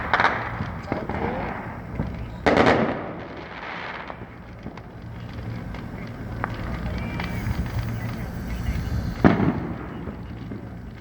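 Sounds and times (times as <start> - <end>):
distant firework bang: 0.0 - 5.0, 9.1 - 10.8
fireworks crackling: 0.0 - 11.0
small firework pops: 0.0 - 11.0.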